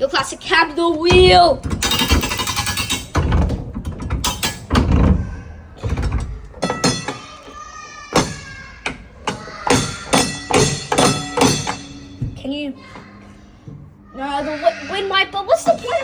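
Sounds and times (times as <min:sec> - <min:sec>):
sharp knocks and thunks: 0:00.2 - 0:07.2.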